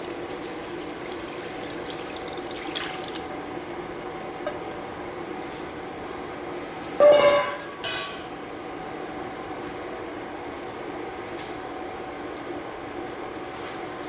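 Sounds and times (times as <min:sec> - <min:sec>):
liquid pouring into skillet: 0:00.0 - 0:03.4.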